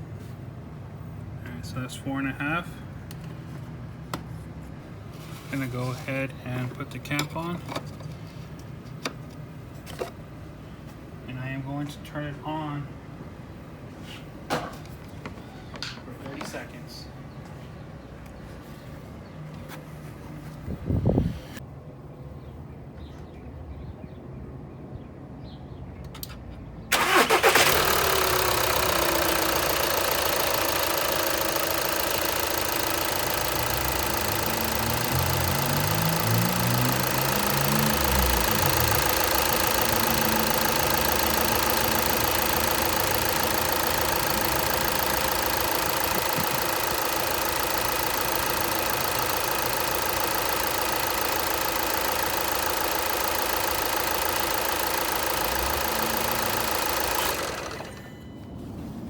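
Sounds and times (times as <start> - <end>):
diesel engine idling: 26.9 - 58.2.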